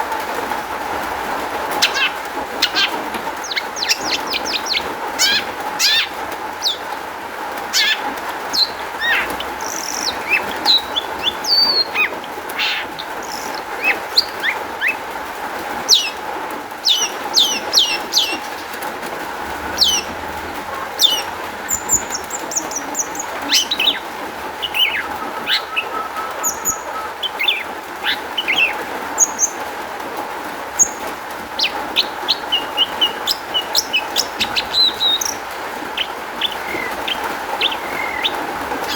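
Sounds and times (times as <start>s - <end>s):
bird singing chirps and whistles: 8.6s - 15.0s, 16.8s - 18.7s, 21.0s - 29.6s, 31.6s - 35.4s.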